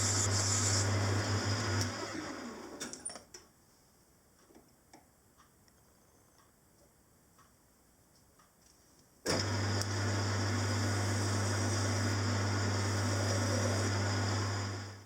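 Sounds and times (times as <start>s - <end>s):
lathe motor humming: 0.0s - 2.6s, 9.3s - 15.0s.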